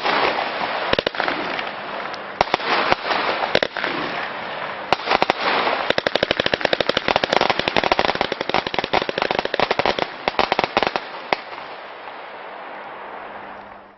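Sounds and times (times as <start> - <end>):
fireworks bangs: 0.0 - 11.7
steady hiss: 0.0 - 13.9.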